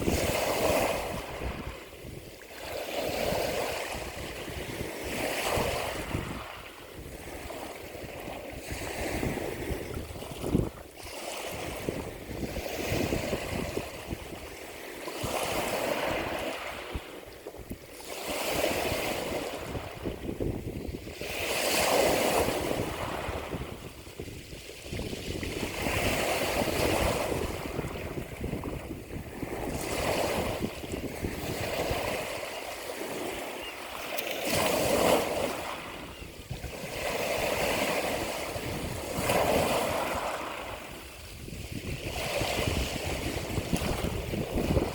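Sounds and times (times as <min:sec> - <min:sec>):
ocean waves washing: 0:00.0 - 0:44.9.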